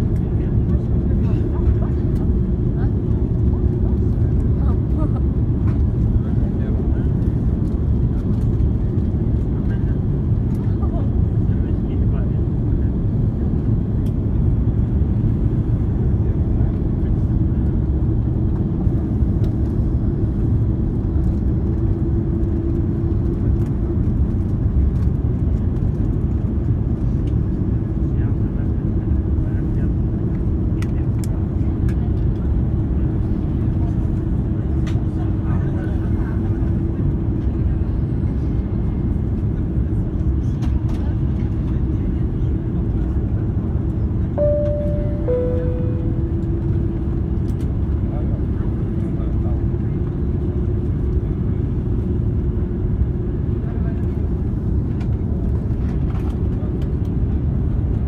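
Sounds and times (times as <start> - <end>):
airliner low rumble: 0.0 - 58.0
two-note chime: 44.4 - 46.8.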